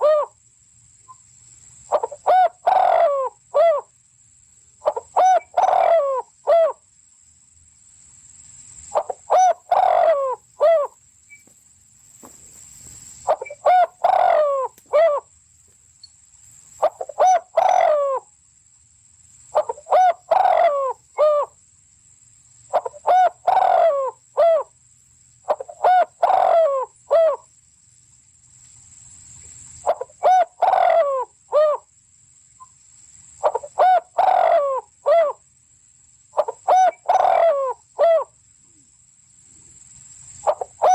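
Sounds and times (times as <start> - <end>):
bird call: 8.9 - 11.6, 13.2 - 15.3, 16.8 - 18.2, 19.6 - 21.6, 22.7 - 24.7.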